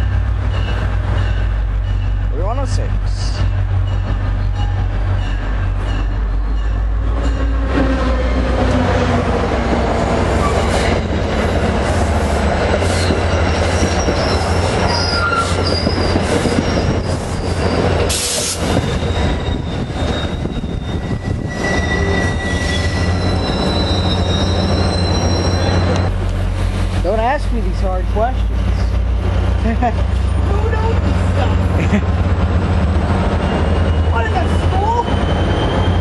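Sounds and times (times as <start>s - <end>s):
train rumbling on rails: 0.0s - 36.0s
rail clicks: 0.1s - 36.0s
high wheel squeals: 12.8s - 26.2s, 33.3s - 36.0s.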